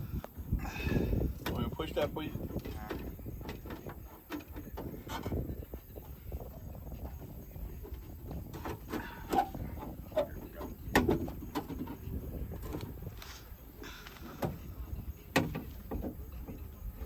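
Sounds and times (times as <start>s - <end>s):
car parts clicking and knocking: 1.4s - 17.0s
short squeaks of car parts: 8.6s - 10.9s.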